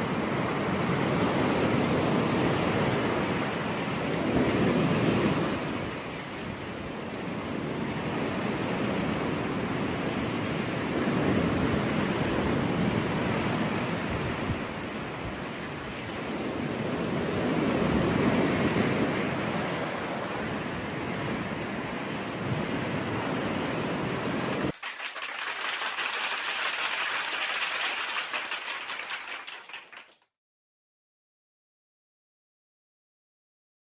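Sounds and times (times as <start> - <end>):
ocean surf washing on beach: 0.0 - 24.8.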